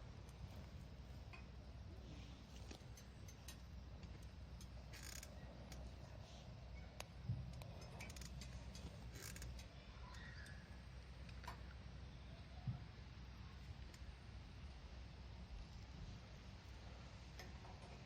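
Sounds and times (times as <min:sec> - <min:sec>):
wood fire crackling in stove: 0:00.0 - 0:12.0.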